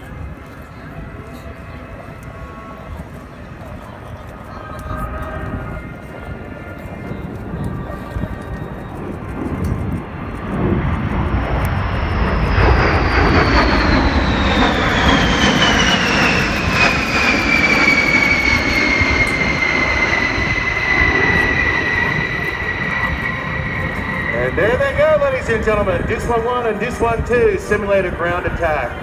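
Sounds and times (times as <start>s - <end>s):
jet engines rumbling past: 0.0s - 29.0s
high engine whine falling: 6.8s - 29.0s.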